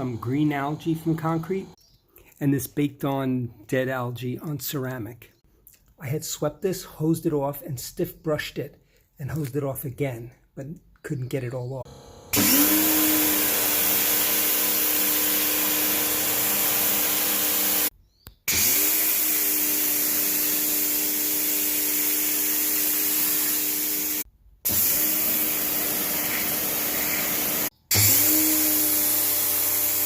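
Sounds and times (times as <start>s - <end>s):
pressure washer motor whining: 0.0s - 1.8s, 11.9s - 17.9s, 18.5s - 30.0s.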